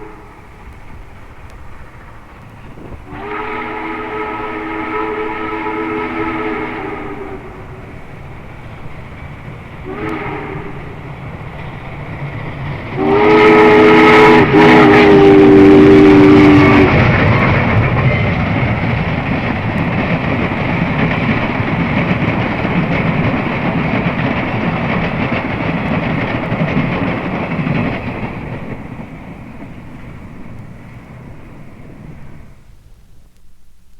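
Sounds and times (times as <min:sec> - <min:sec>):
steam locomotive chime whistle: 0:00.0 - 0:00.7, 0:01.8 - 0:08.1, 0:09.8 - 0:12.1, 0:12.8 - 0:18.6
train wheels rumbling on rail: 0:00.0 - 0:33.9.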